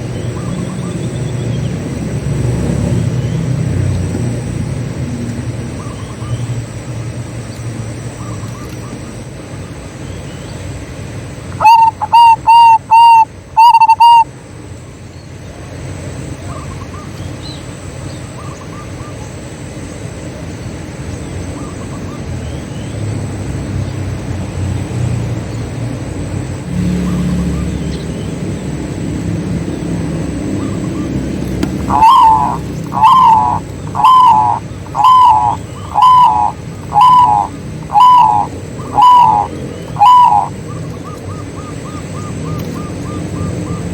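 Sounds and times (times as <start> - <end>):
doves cooing: 11.6 - 14.3, 30.1 - 43.9
low background rumble: 25.3 - 43.9.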